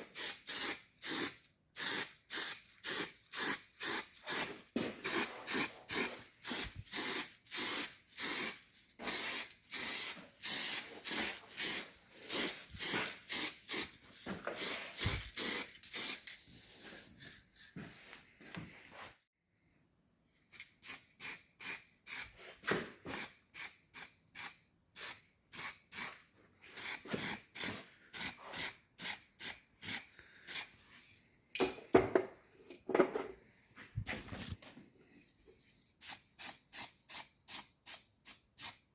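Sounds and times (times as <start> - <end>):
aerosol spray can hissing: 0.1 - 13.9, 14.6 - 16.3, 26.8 - 30.8, 36.0 - 38.9.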